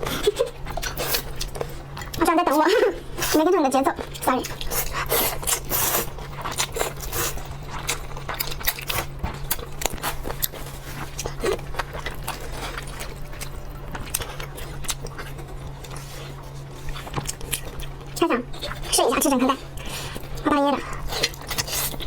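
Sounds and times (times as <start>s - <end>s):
low steady hum: 0.0s - 22.0s
chewing and lip smacking: 3.9s - 22.0s.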